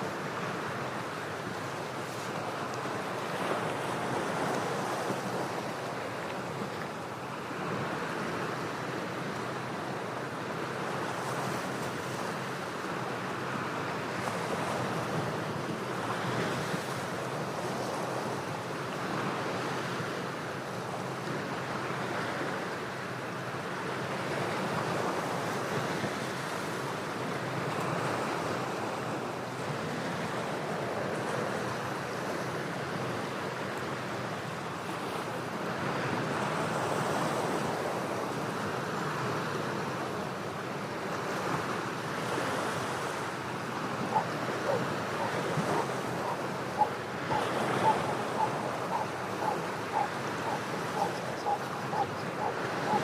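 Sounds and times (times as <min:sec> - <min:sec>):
ocean waves breaking on rocks: 0:23.6 - 0:53.0.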